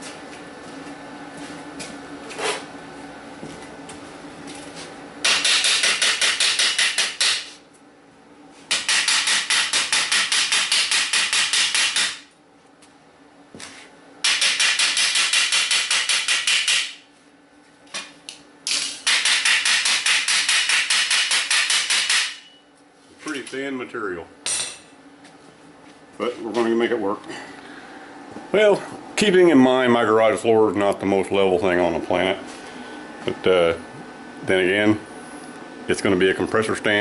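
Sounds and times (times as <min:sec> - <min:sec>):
rapid hammering on metal: 0:05.2 - 0:07.6, 0:08.7 - 0:12.3, 0:14.2 - 0:17.0, 0:19.0 - 0:22.5.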